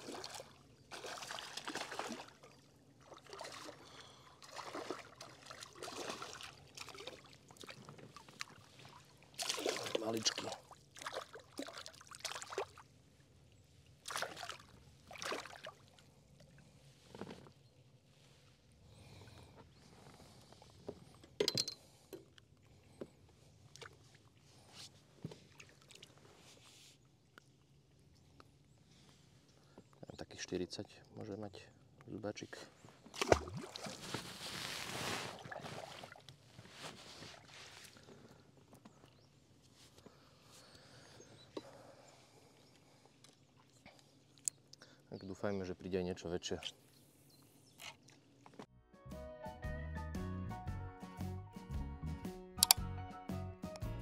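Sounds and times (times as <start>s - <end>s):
water splashing and trickling: 0.0s - 16.7s, 25.3s - 26.5s, 33.1s - 38.3s
fishing gear knocking and clicking: 21.4s - 22.3s, 52.6s - 52.8s.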